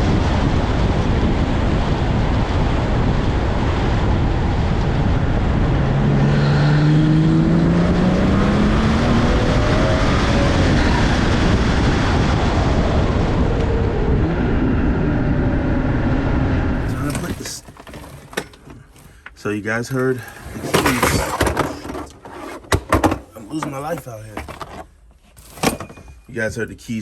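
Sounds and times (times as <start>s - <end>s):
wind noise: 0.0s - 18.5s
road noise: 0.0s - 25.9s
car engine accelerating: 4.0s - 17.6s.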